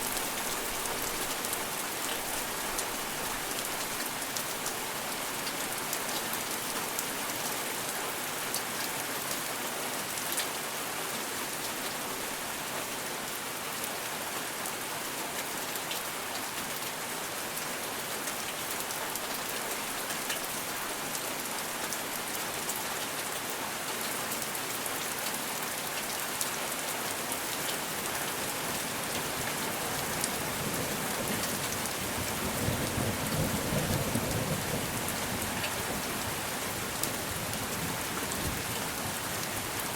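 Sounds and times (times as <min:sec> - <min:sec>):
steady rain falling: 0:00.0 - 0:39.9
low rumble of thunder: 0:32.1 - 0:35.6.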